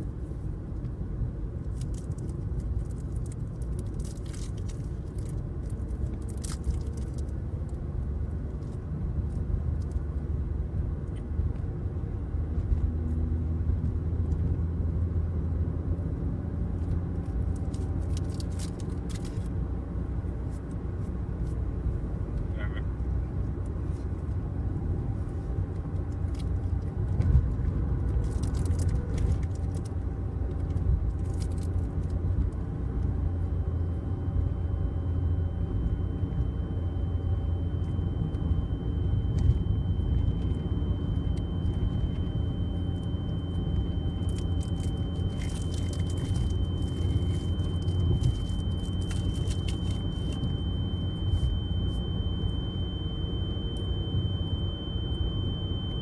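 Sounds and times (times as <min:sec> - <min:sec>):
car driving rumble: 0:00.0 - 0:56.0
high-pitched tone: 0:33.7 - 0:56.0.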